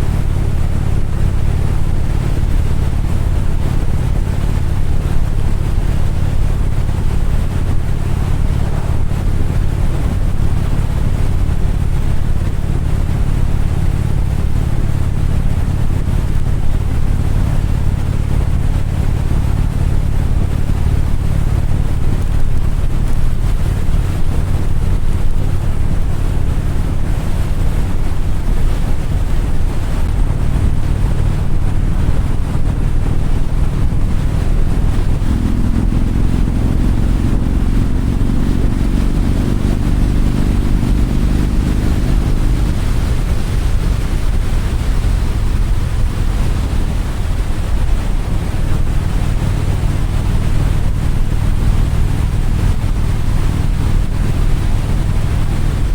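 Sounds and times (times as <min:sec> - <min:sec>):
motorcycle engine running: 0:00.0 - 0:55.9
wind noise on microphone: 0:00.0 - 0:55.9
higher steady drone: 0:06.4 - 0:12.0, 0:29.7 - 0:46.7.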